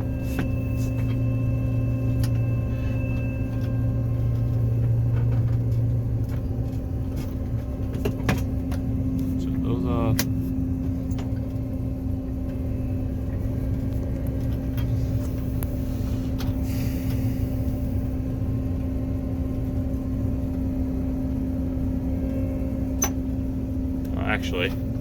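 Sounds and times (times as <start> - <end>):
diesel engine rumbling: 0.0 - 25.0.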